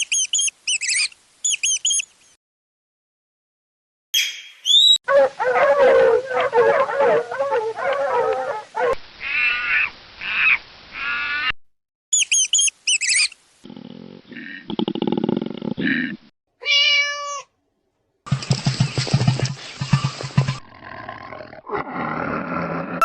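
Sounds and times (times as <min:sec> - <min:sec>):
high animal chirps: 0:00.0 - 0:02.1, 0:04.2 - 0:05.0, 0:12.1 - 0:13.4.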